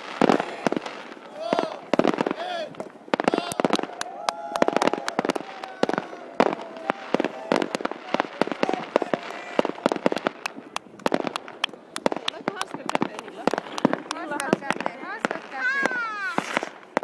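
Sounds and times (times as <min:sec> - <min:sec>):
fireworks bangs and firecracker cracks: 0:00.0 - 0:17.0.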